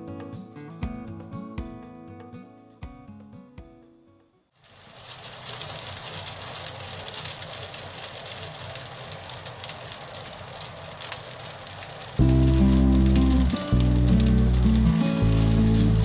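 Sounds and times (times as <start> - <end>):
food sizzling in frying pan: 4.6 - 16.0.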